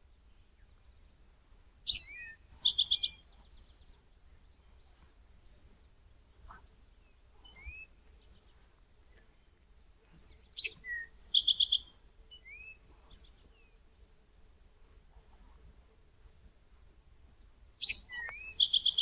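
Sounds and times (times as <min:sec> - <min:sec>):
songbirds whistling and trilling: 0:01.8 - 0:05.6, 0:06.5 - 0:13.8, 0:17.6 - 0:19.0.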